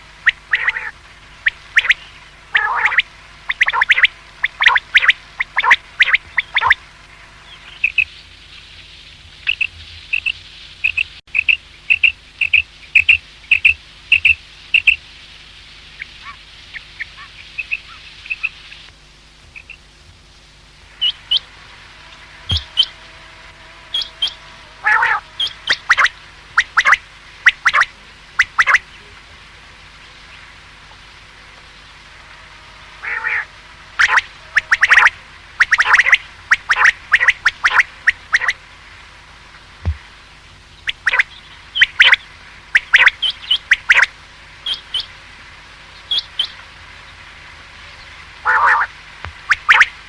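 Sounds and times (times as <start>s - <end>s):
quail calling: 0.0s - 6.8s, 22.5s - 23.0s, 23.9s - 28.9s, 33.0s - 38.6s, 40.9s - 44.1s, 48.4s - 50.0s
faint steady hum: 0.0s - 50.0s.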